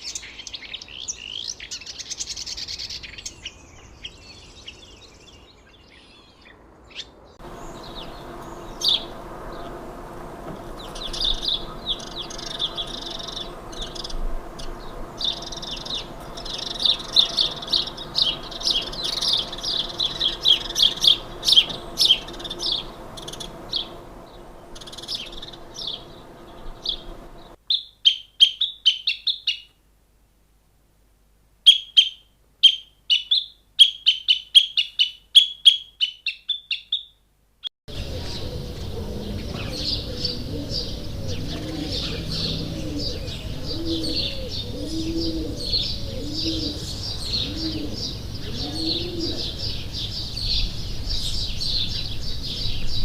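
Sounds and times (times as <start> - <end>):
small birds chirping: 0.0 - 29.8, 31.7 - 37.2, 37.9 - 53.0
background hiss: 0.0 - 33.8, 37.3 - 53.0
low cooing calls: 6.2 - 29.6, 37.9 - 53.0.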